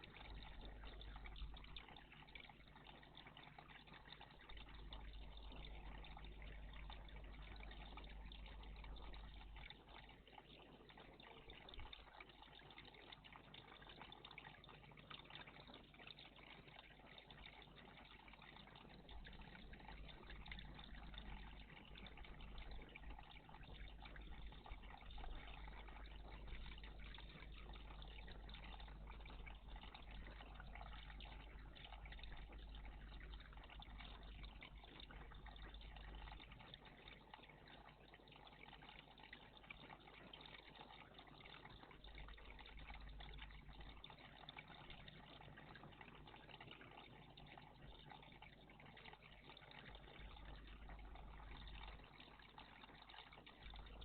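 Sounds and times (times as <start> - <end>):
water trickling: 0.0 - 54.0.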